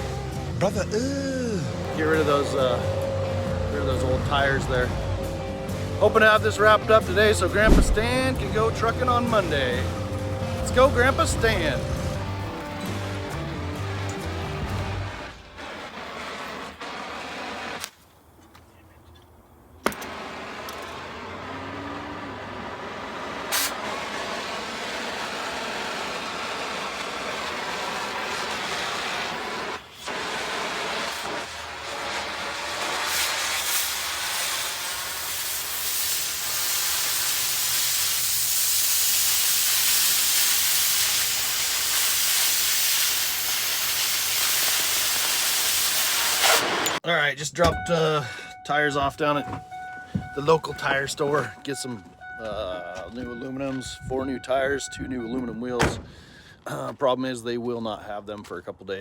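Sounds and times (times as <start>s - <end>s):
road and wind noise: 1.7s - 15.2s, 18.0s - 24.8s, 49.1s - 56.7s.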